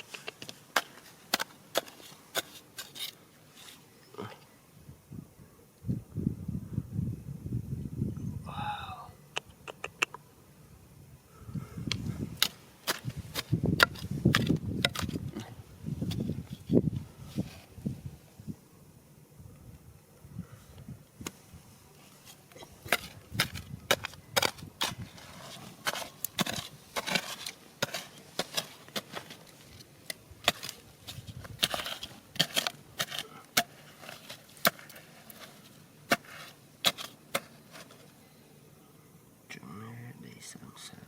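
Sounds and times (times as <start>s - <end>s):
digging tool striking stones: 0.0s - 3.8s, 11.9s - 16.8s, 22.3s - 38.1s.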